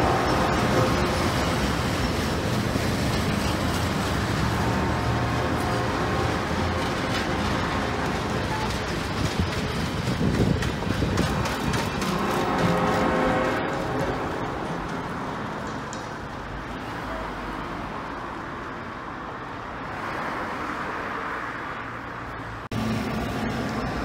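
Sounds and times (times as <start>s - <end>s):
train wheels rumbling on rails: 0.0s - 16.9s.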